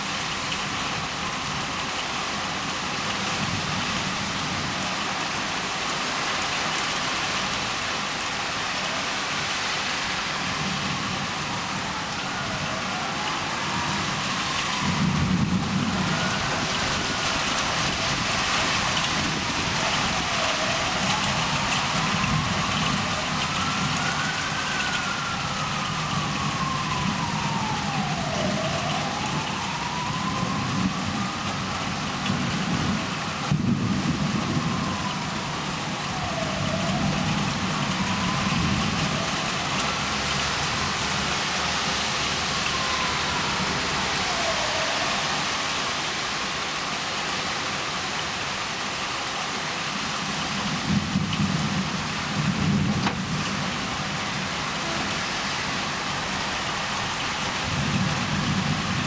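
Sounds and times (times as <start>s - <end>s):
distant siren wailing: 0.0s - 59.0s
heavy rain falling: 0.0s - 59.0s
thunder rolling: 10.5s - 41.3s.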